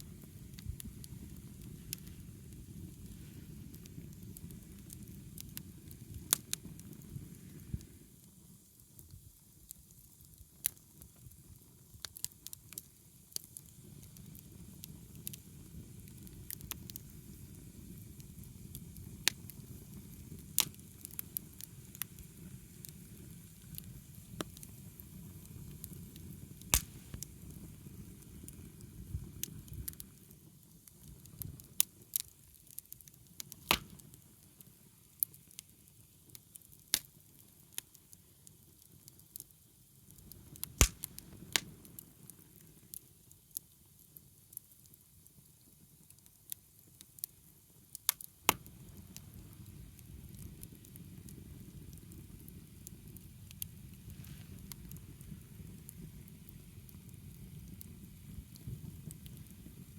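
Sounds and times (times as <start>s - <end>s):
flames rustling: 0.0s - 8.7s, 13.4s - 34.8s, 40.1s - 43.0s, 48.5s - 59.9s
firewood popping and cracking: 23.7s - 27.5s, 32.1s - 34.1s, 40.2s - 42.0s.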